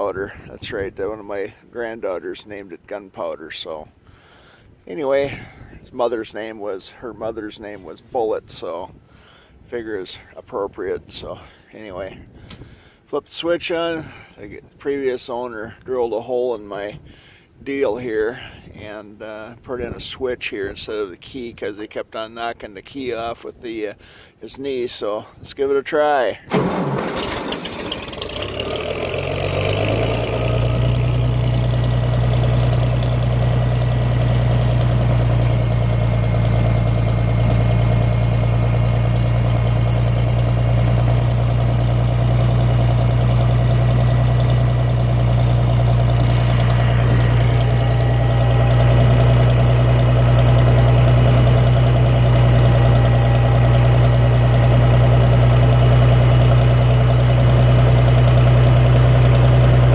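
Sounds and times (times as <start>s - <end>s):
tractor engine starting and running: 26.4s - 59.9s.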